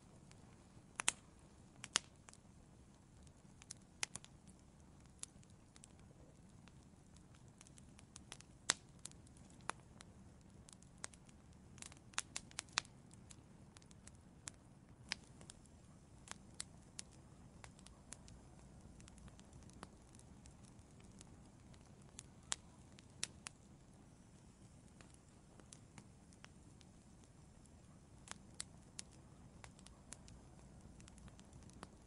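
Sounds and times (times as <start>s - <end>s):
faint low hiss: 0.0s - 32.0s
wood fire crackling and popping: 0.0s - 32.0s.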